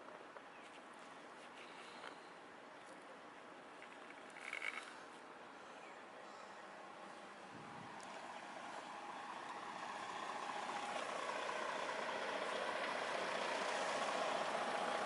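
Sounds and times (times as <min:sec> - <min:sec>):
engine running: 0:06.8 - 0:15.0.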